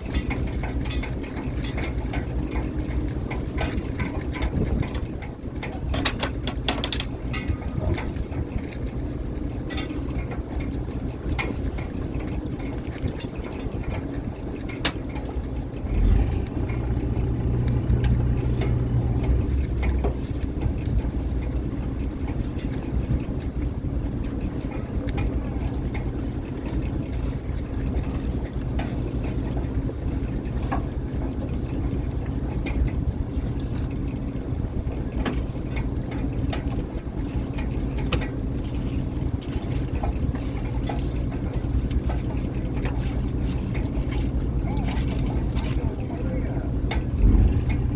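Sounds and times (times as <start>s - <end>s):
boat engine rumbling: 0.0s - 47.9s
clicks and knocks: 5.7s - 8.1s.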